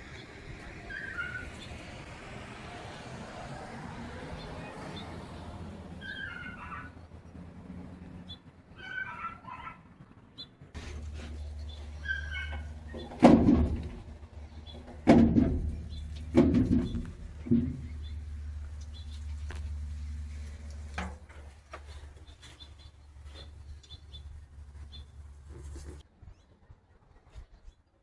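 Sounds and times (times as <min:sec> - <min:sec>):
heavy thumps: 0:12.9 - 0:14.1, 0:14.8 - 0:18.0.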